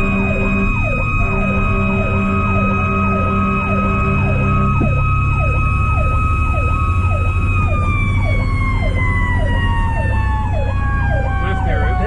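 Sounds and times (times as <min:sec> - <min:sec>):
air horn: 0:00.0 - 0:05.1
electronic siren cycling: 0:00.0 - 0:12.0
mechanical siren screaming: 0:00.0 - 0:12.0
truck engine rumble: 0:00.0 - 0:12.0.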